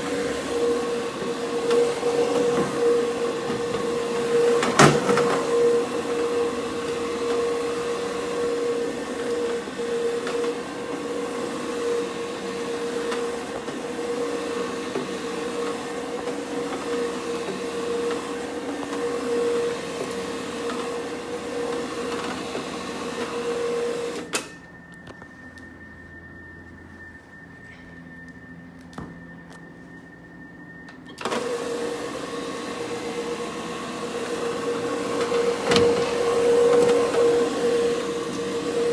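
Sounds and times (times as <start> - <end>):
carpet scrubbing machine motor hum: 0.0 - 24.3, 31.2 - 38.9.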